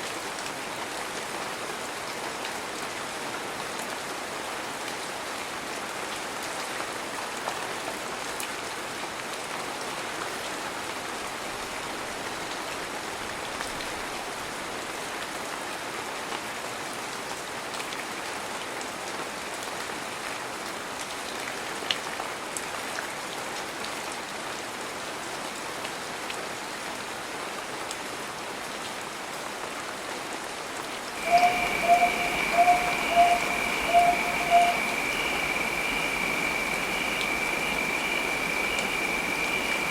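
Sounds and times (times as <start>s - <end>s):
heavy rain: 0.0s - 39.9s
pulsing lower note: 31.2s - 39.9s
steady high tone: 31.2s - 39.9s.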